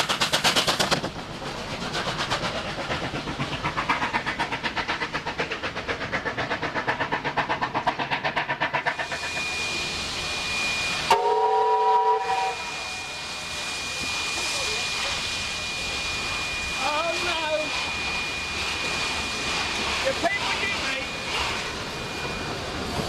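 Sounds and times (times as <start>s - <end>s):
steam hissing: 0.0s - 23.0s
steam locomotive chuffing: 0.0s - 23.0s
train whistle blast: 9.2s - 13.4s.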